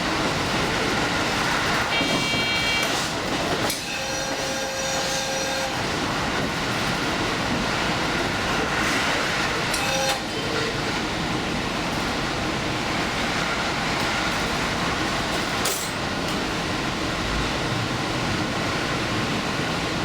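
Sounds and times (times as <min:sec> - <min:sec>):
train running at speed: 0:00.0 - 0:20.0
steady warning tones: 0:00.1 - 0:15.3.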